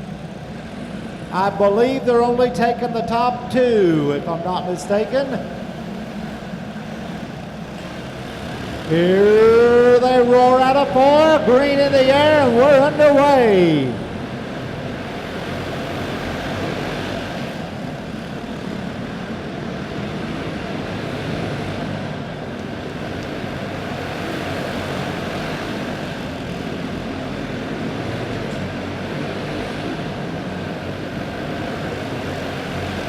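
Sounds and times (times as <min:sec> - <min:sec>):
racing kart engines droning: 0:00.0 - 0:33.0.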